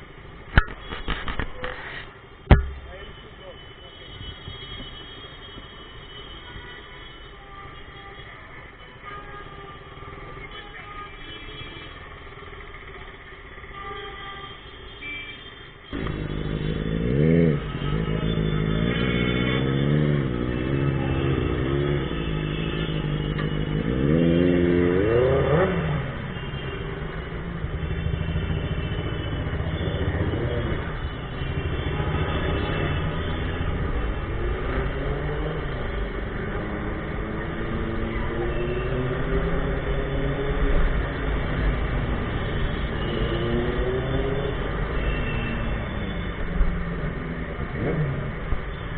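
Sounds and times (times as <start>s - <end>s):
quiet street traffic: 0.0s - 48.9s
motorcycle engine revving: 16.0s - 26.2s.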